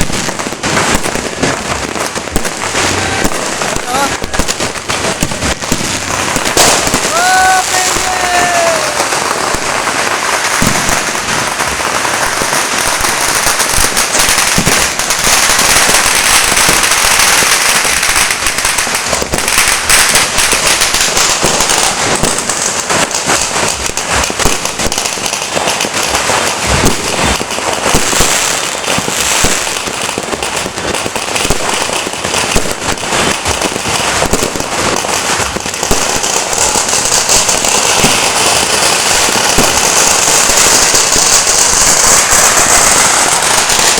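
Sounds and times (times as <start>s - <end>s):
firecrackers crackling: 0.0s - 43.9s
loud firework bangs: 0.0s - 43.9s.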